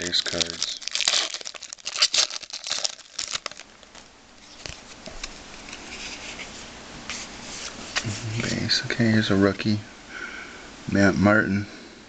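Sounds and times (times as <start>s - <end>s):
card pack wrapper crinkling: 0.0s - 6.3s
cards rustling: 0.0s - 8.7s.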